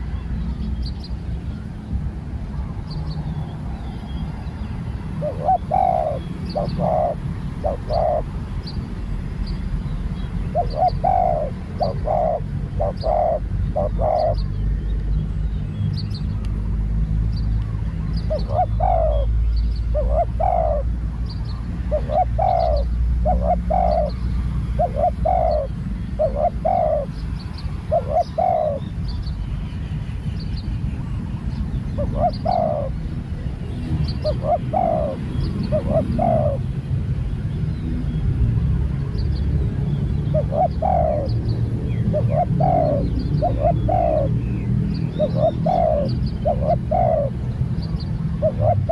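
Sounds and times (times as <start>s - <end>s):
doves cooing: 2.6s - 8.6s, 10.4s - 14.6s, 18.2s - 21.1s, 21.8s - 29.0s, 31.8s - 33.3s, 34.0s - 36.7s, 40.3s - 47.5s, 48.4s - 48.9s.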